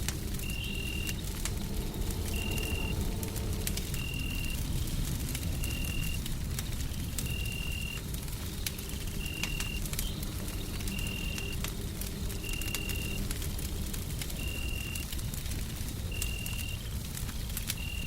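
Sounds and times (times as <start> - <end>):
deep white-noise rumble: 0.0 - 17.8
wood fire crackling and popping: 0.0 - 18.0.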